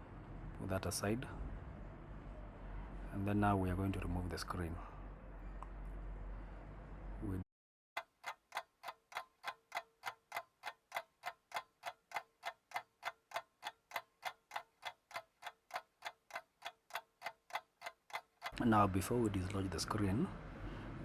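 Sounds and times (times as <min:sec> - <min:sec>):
clock-like ticking: 0:08.0 - 0:18.6.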